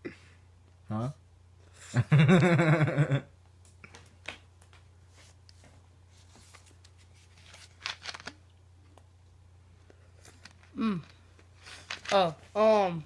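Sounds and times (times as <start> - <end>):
low steady hum: 0.0 - 13.0
rustling and clicking handling noises: 3.6 - 9.1, 9.8 - 12.6.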